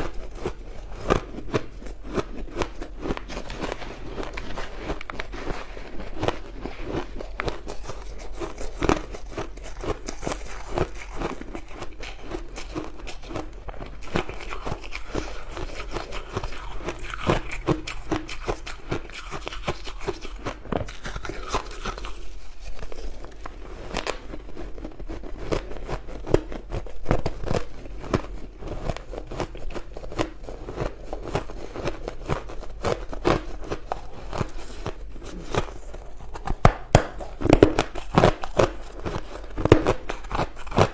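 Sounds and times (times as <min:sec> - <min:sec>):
person chewing crushed ice: 0:00.0 - 0:40.9.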